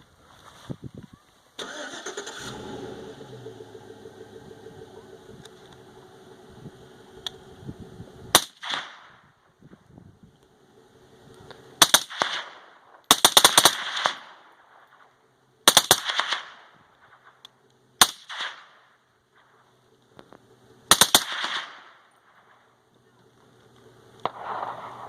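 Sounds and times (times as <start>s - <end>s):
gunshot echo: 8.3s - 9.3s, 11.8s - 15.1s, 15.7s - 17.4s, 18.0s - 18.8s, 20.9s - 22.7s, 24.2s - 25.0s
suppressed rifle shots: 8.3s - 9.3s, 11.8s - 19.0s, 20.9s - 22.7s, 24.2s - 25.0s.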